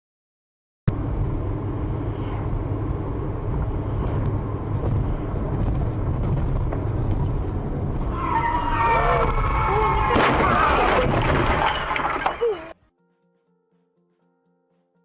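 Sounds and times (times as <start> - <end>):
car engine rumble: 0.9 - 12.8
road noise: 0.9 - 12.8.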